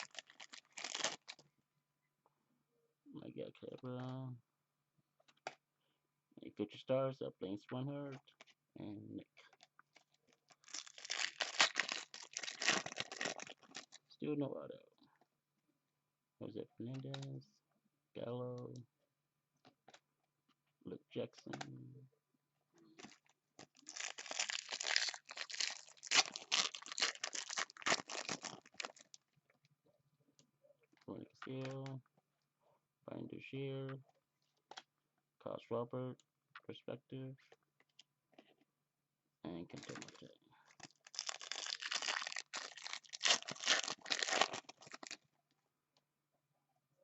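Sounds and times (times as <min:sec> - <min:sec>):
foil wrapper tearing and crinkling: 0:00.0 - 0:01.4, 0:10.6 - 0:14.0, 0:23.0 - 0:29.1, 0:40.8 - 0:45.2.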